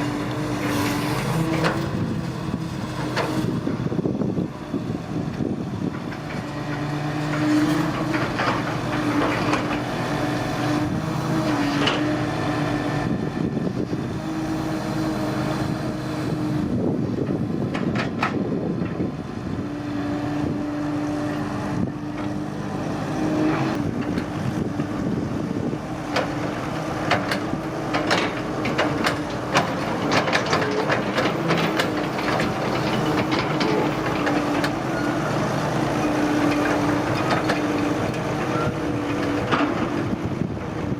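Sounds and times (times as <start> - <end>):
excavator diesel engine running: 0.0 - 40.9
sharp clanks and knocks: 17.7 - 19.0, 26.1 - 34.8.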